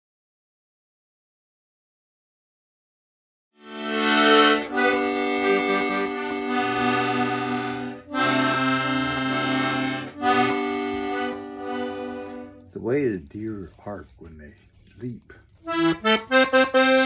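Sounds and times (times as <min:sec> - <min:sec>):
accordion playing chords: 0:03.6 - 0:13.1, 0:15.6 - 0:17.0.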